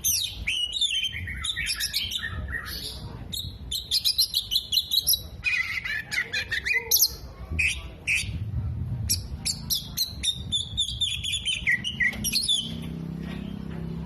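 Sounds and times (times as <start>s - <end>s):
bird singing chirps and trills: 0.0s - 8.4s, 9.1s - 13.8s.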